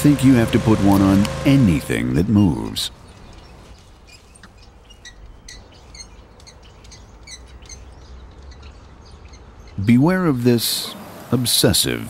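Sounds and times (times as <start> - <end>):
small birds chirping: 2.2 - 10.4.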